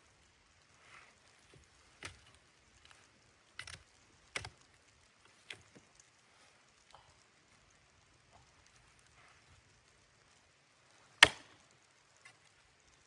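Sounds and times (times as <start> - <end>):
faint sharp clicks and knocks: 1.0 - 10.4.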